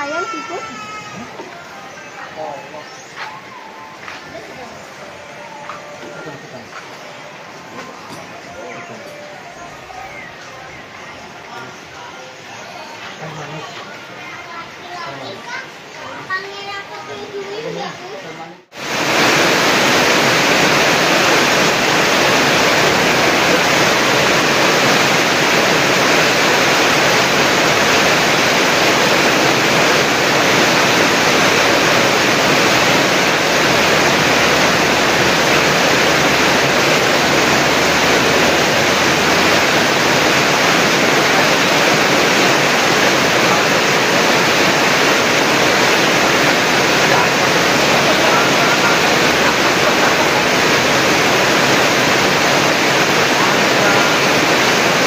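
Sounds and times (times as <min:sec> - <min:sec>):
fast-flowing river water rushing: 0:17.5 - 0:55.0.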